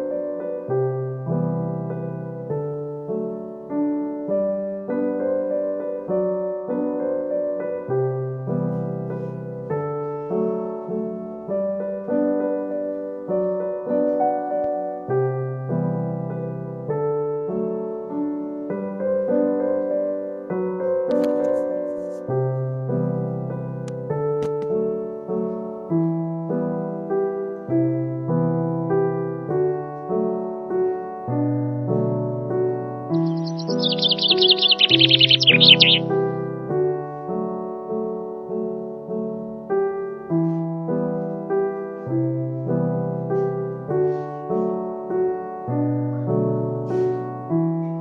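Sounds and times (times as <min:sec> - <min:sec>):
gentle solo piano: 0:00.0 - 0:48.0.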